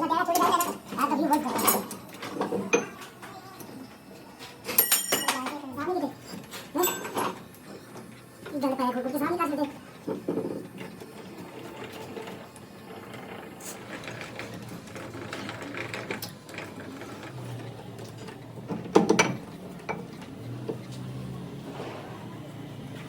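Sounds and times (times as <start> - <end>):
mechanical clicking and clatter: 10.8 - 20.9.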